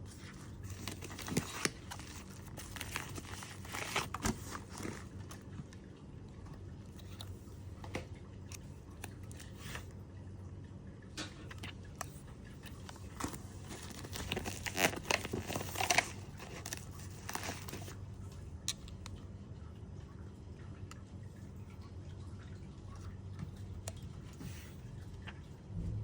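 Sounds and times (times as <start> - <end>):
faint steady hum: 0.0 - 26.0
plastic packaging crinkling: 0.1 - 5.6, 11.6 - 18.0.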